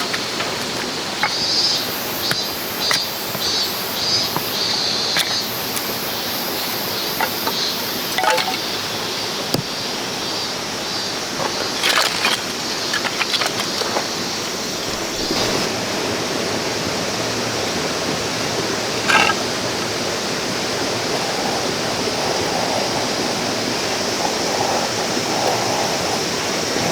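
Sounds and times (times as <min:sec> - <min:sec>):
light clinks and knocks: 0:00.0 - 0:08.9
river stream running: 0:00.0 - 0:26.9.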